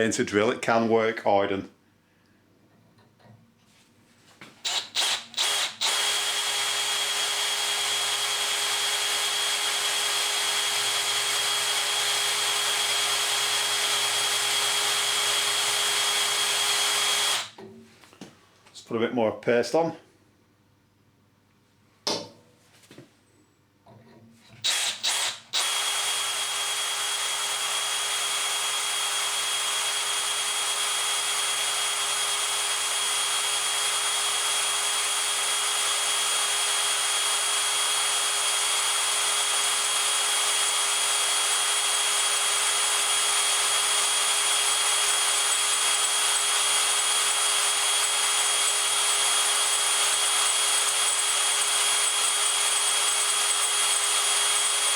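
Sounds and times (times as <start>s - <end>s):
power drill cutting into steel: 4.6s - 17.6s, 24.6s - 54.9s.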